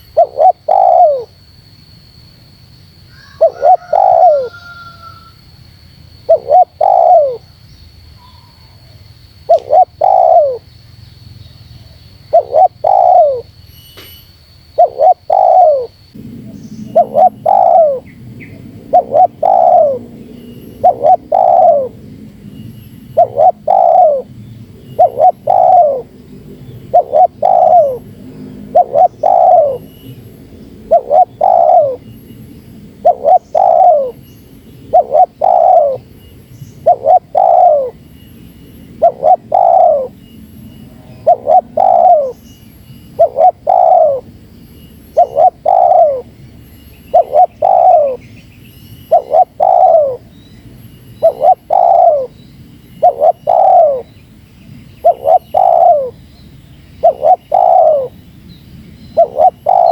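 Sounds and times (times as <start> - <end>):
dove cooing: 0.0 - 1.4, 3.2 - 5.3, 6.2 - 7.5, 9.5 - 10.7, 12.2 - 13.5, 14.8 - 22.1, 23.2 - 29.9, 30.6 - 32.1, 32.9 - 36.1, 36.8 - 38.0, 39.0 - 40.2, 41.2 - 42.4, 43.2 - 44.3, 45.1 - 46.4, 47.1 - 48.3, 49.1 - 50.3, 51.2 - 52.4, 53.0 - 54.1, 55.0 - 56.2, 57.0 - 58.2, 59.2 - 59.9.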